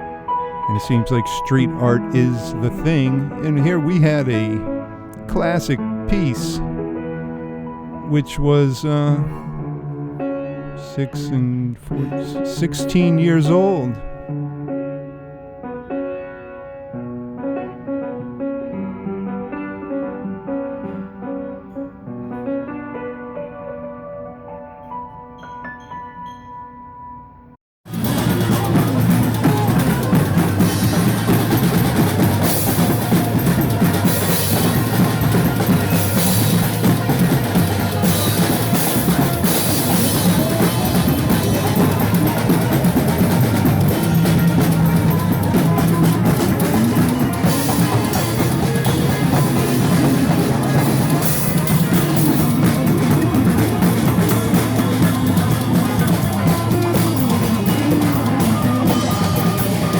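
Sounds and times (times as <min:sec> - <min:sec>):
band music with drum kit: 0:00.7 - 0:06.7, 0:08.1 - 0:09.4, 0:10.8 - 0:14.2, 0:27.9 - 0:59.9.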